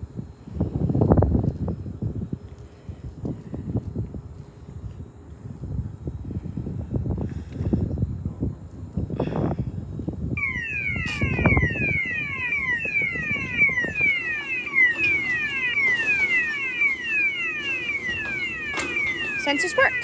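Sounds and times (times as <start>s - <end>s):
gate alarm falling tone: 10.4s - 20.0s.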